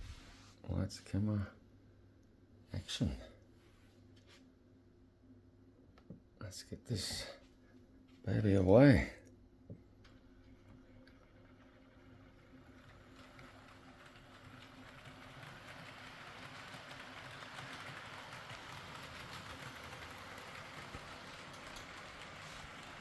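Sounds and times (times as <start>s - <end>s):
model train wheels rattling on rails: 10.8s - 23.0s.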